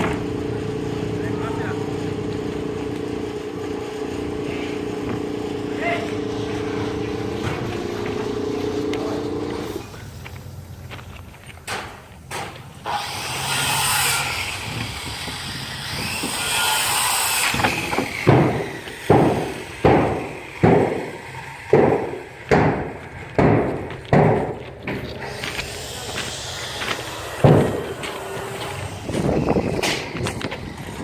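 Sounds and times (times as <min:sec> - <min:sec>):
sharp knocks on wood: 0:17.6 - 0:21.1, 0:21.7 - 0:25.0.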